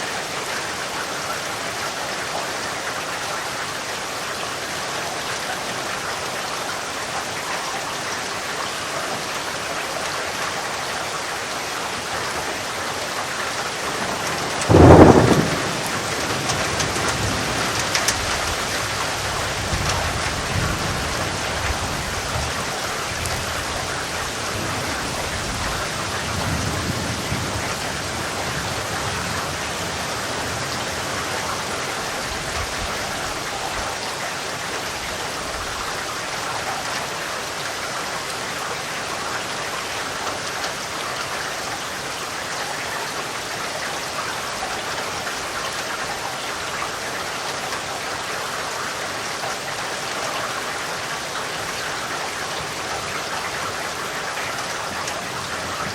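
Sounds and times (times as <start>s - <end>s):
steady rain falling: 0.0s - 55.9s
distant thunder rumble: 13.8s - 33.2s.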